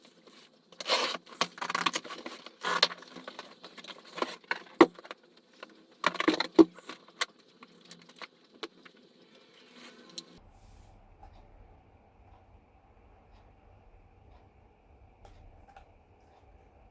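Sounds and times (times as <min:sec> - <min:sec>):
objects clattering and rattling: 0:00.1 - 0:09.0.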